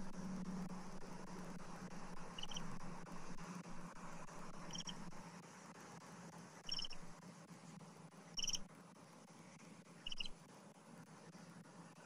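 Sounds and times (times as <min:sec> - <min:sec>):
low outdoor hum: 0:00.0 - 0:12.0
high fluttering bird call: 0:02.4 - 0:02.7, 0:04.7 - 0:05.0, 0:10.1 - 0:10.3.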